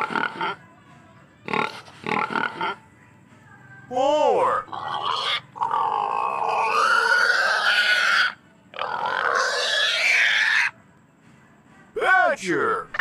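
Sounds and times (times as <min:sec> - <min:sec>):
animal grunting calls: 0:00.0 - 0:00.6, 0:01.5 - 0:02.8, 0:04.5 - 0:10.7.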